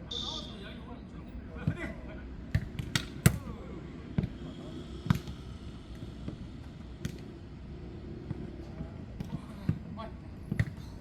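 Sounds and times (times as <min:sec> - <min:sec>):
ball kicked and bouncing: 0:10.5 - 0:10.8.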